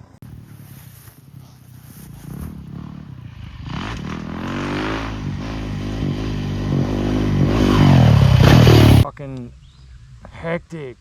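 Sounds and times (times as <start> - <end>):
motocross bike engine revving: 0.2 - 9.0.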